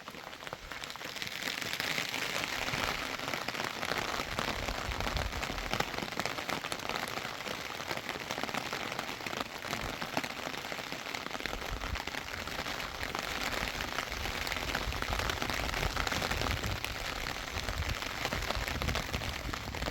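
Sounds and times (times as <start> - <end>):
steady rain falling: 0.0 - 19.9.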